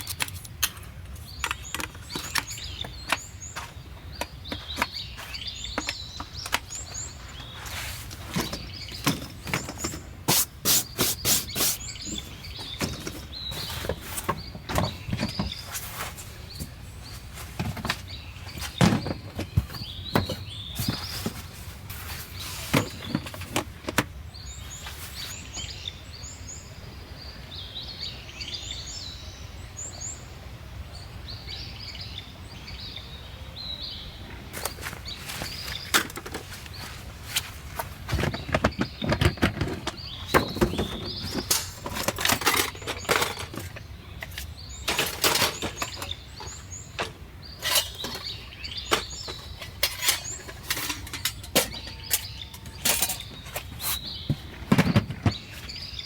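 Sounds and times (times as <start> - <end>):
low outdoor background: 0.0 - 56.0
small birds chirping: 0.0 - 56.0
sharp knocks and clatters: 17.6 - 21.4, 37.4 - 55.8.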